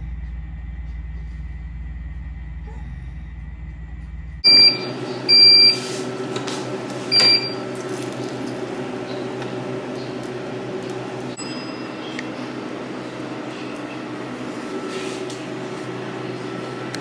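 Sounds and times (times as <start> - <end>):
steady mechanical hum: 0.0 - 17.0
short electronic beeps: 4.4 - 5.9, 7.1 - 7.6.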